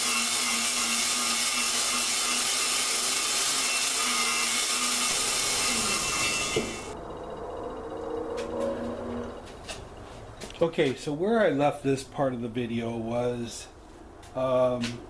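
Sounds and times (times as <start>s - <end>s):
drill motor hum: 0.0s - 10.0s.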